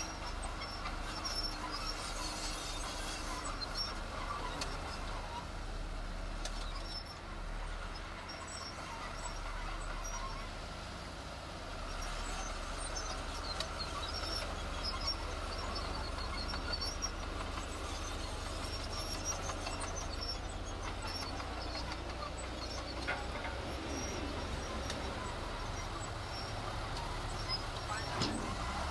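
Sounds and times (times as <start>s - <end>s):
heavy machinery engine rumble: 0.0s - 28.9s
short high squeaks: 12.0s - 28.9s.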